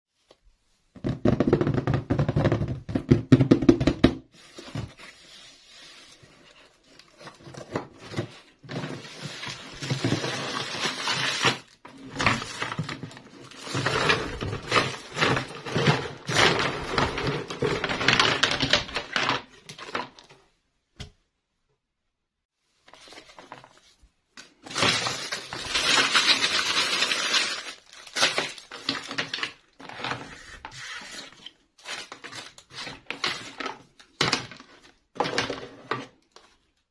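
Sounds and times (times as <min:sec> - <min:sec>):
packaging rustling and crinkling: 0:04.4 - 0:20.4, 0:22.7 - 0:36.9.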